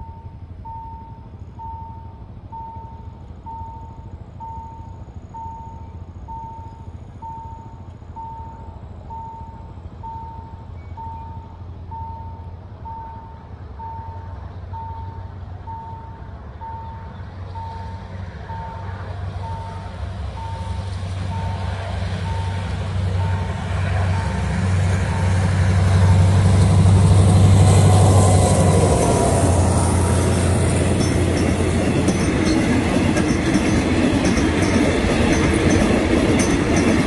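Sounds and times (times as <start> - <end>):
level crossing signal beeping: 0.0 - 25.5
diesel locomotive rumble: 0.0 - 37.0.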